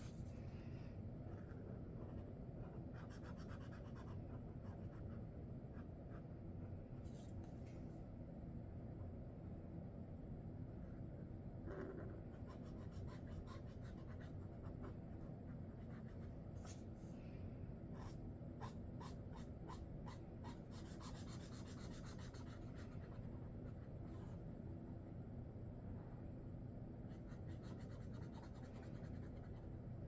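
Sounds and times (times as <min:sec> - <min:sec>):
marker scratching on paper: 0:01.3 - 0:05.1, 0:18.0 - 0:24.4, 0:27.2 - 0:29.6.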